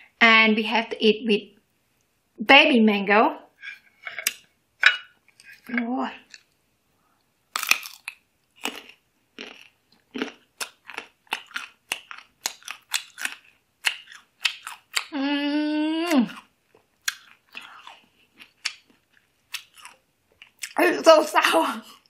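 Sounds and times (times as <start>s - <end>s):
crunching and chewing mango: 7.5s - 15.2s, 16.0s - 20.8s
person humming mmm: 15.1s - 16.4s.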